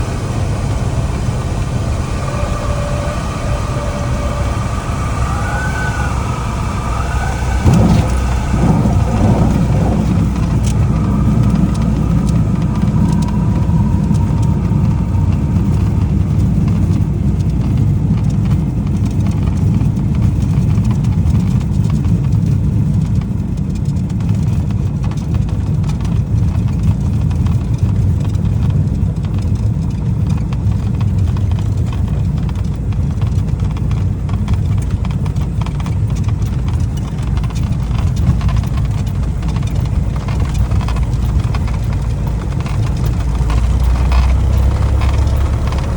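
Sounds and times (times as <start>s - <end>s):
aircraft bump: 0.0s - 22.4s, 25.1s - 45.9s
light aircraft engine drone: 0.0s - 45.9s
short gliding tones: 0.6s - 17.0s.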